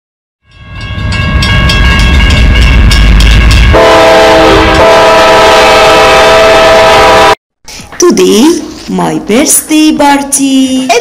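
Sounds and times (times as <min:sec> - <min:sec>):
train clattering: 0:00.8 - 0:03.8
loud train horn: 0:03.7 - 0:07.4.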